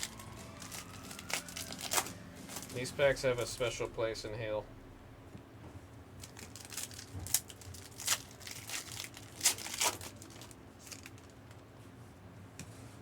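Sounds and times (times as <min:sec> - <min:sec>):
card wrappers crinkling and tearing: 0:00.0 - 0:03.9, 0:06.2 - 0:11.6.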